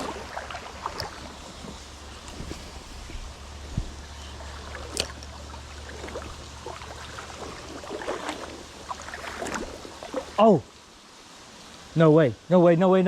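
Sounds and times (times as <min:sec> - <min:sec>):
wind rumbling on microphone: 0:00.0 - 0:10.4
small ticks and splashes: 0:00.0 - 0:11.8
creek water running: 0:00.0 - 0:13.0.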